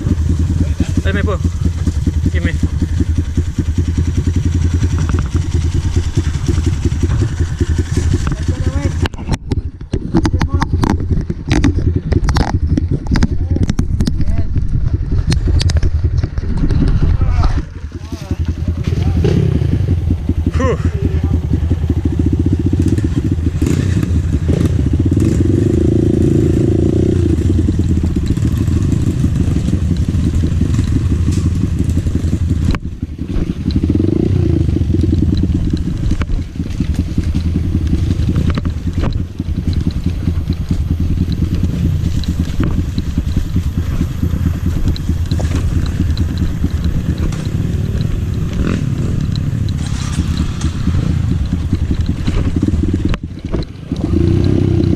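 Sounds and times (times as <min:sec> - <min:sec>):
dirt bike engine running: 0:00.0 - 0:54.9
clicks and rattles: 0:04.8 - 0:17.7, 0:34.7 - 0:54.9.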